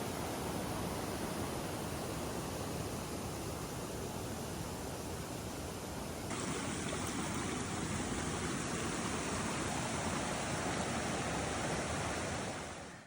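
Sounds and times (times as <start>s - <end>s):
waterfall rushing: 6.3s - 13.0s.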